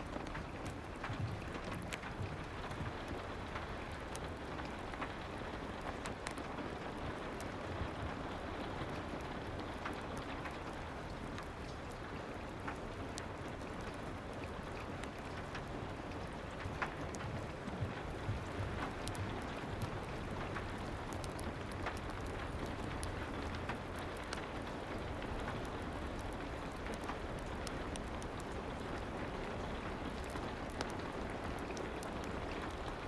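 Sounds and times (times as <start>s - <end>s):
soft rain: 0.0s - 33.0s
fireplace crackling: 14.6s - 33.0s.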